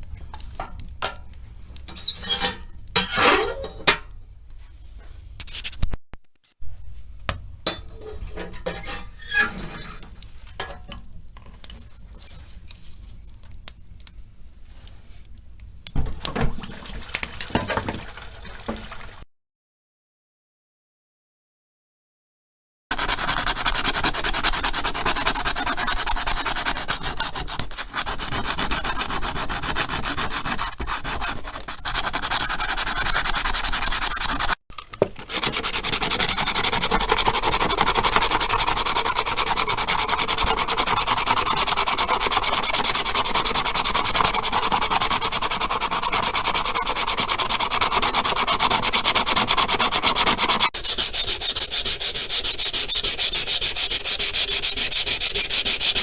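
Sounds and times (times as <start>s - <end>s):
sanding a surface: 22.9s - 34.6s, 35.2s - 56.0s.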